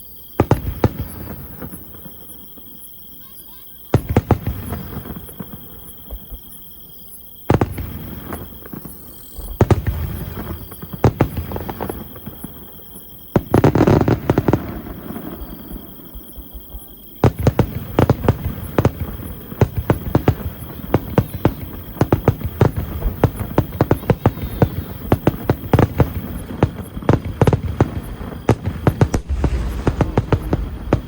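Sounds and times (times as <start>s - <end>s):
fireworks exploding: 0.4s - 6.6s, 7.4s - 31.0s.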